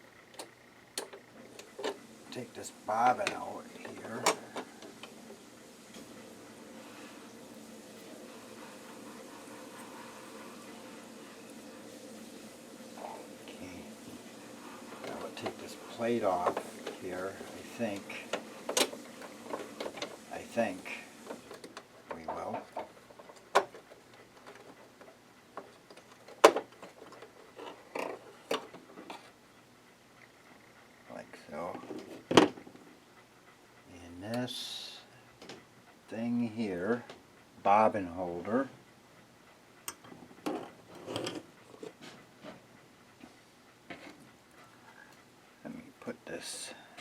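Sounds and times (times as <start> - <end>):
light clicks and knocks of parts: 0.3 - 5.2, 14.9 - 29.4.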